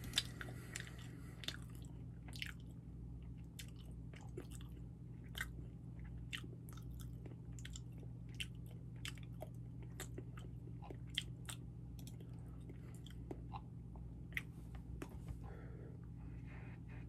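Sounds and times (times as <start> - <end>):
wet mouth chewing: 0.0 - 2.7
low hum: 0.0 - 17.0.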